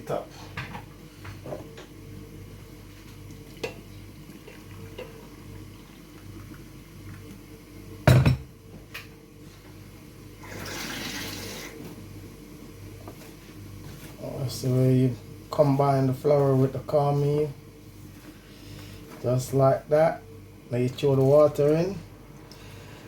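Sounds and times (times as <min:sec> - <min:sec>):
faint steady hum: 0:00.0 - 0:23.0
water running: 0:03.1 - 0:07.5, 0:10.4 - 0:11.8.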